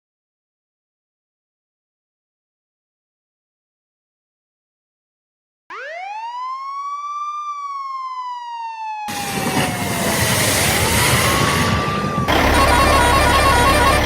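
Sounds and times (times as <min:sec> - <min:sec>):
wailing siren: 0:05.7 - 0:14.0
loud dense rumbling: 0:09.9 - 0:14.0.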